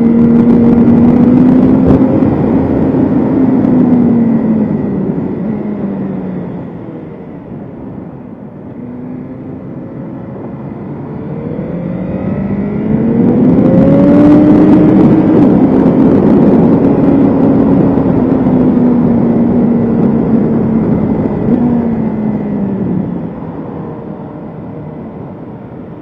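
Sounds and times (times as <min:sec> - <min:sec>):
motorcycle engine pulling hard: 0:00.0 - 0:07.0.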